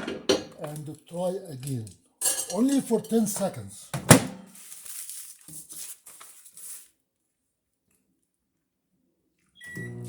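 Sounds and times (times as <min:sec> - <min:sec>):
microwave door clunk: 0:04.0 - 0:04.4.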